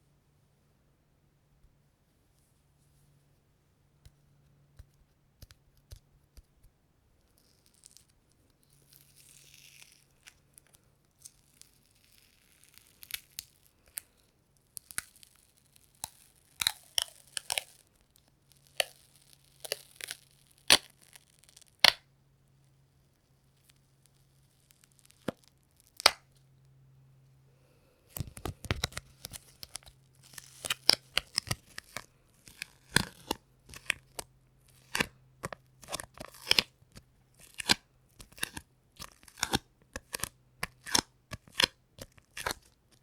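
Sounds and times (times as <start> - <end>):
sticky tape peeling apart: 18.7 - 22.0.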